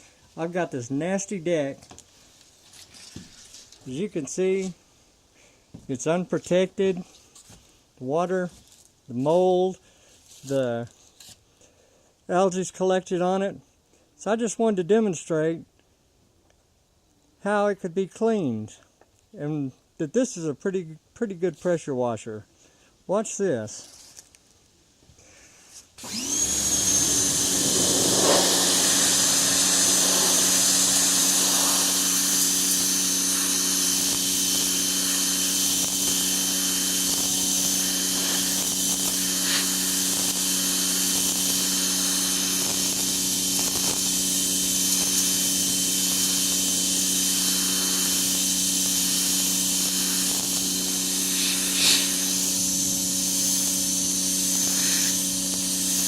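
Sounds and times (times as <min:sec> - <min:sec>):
pressure washer motor whining: 0:26.0 - 0:56.0
water jet hissing on wood: 0:26.1 - 0:56.0.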